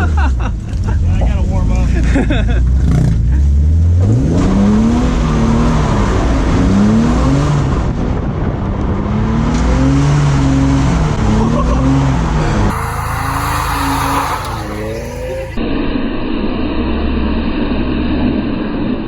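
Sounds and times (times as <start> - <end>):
car engine revving hard: 12.7 - 15.6.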